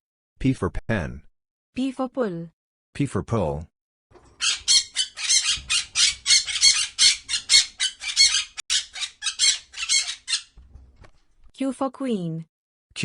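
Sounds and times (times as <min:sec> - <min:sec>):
bird squawking calls: 0:04.4 - 0:10.6.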